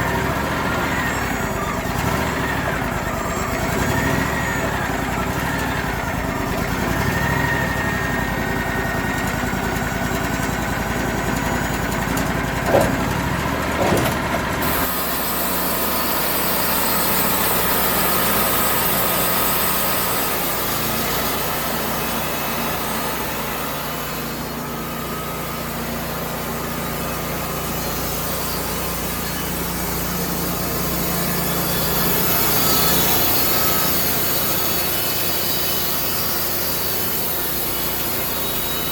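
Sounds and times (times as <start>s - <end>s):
saw cutting through wood: 0.0s - 38.9s
saw engine running: 0.0s - 38.9s.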